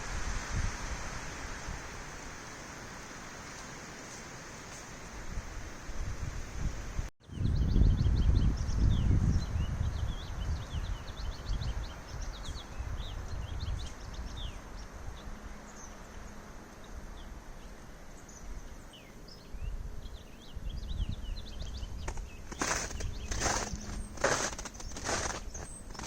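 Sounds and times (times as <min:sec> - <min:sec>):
wind rumbling on microphone: 0:00.0 - 0:26.0
small birds chirping: 0:07.2 - 0:26.0.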